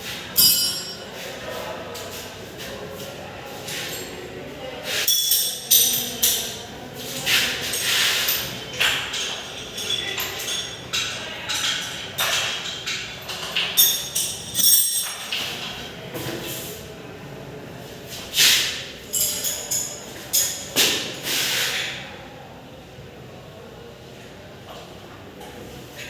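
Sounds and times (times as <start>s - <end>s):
metal tools clinking and rattling: 0.4s - 1.0s, 5.0s - 6.7s, 7.6s - 15.7s, 19.1s - 20.7s.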